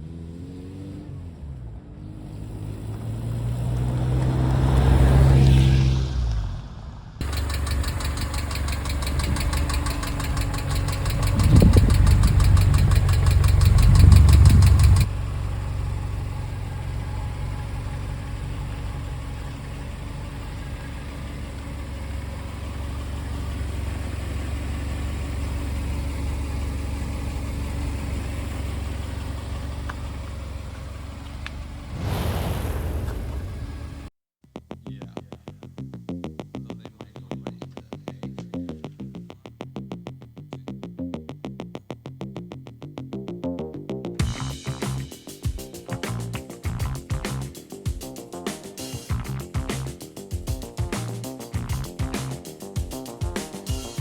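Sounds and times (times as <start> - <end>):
car engine revving and idling: 0.0 - 34.1
engine lifter ticking: 7.2 - 31.7, 49.0 - 54.0.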